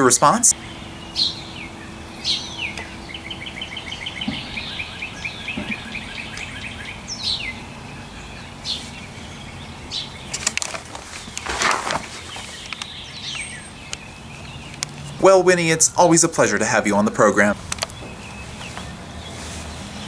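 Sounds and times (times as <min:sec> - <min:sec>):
songbirds calling: 0:00.0 - 0:20.0
sharp clicks: 0:12.6 - 0:15.1, 0:17.6 - 0:18.0.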